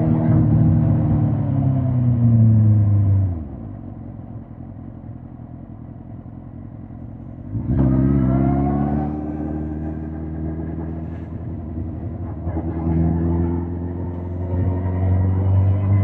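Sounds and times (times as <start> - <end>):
motorcycle engine revving: 7.4 - 16.0.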